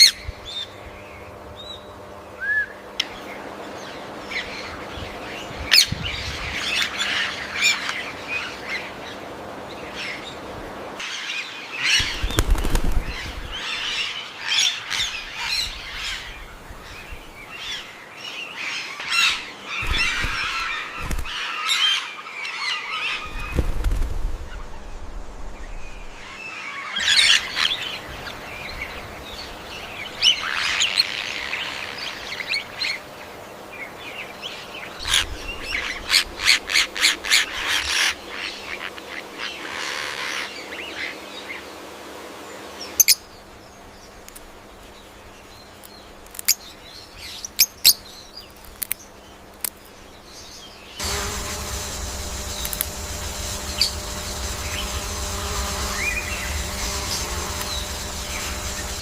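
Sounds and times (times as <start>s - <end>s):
bird calls and chirps: 11.0s - 23.8s
sharp clicks: 51.0s - 59.0s.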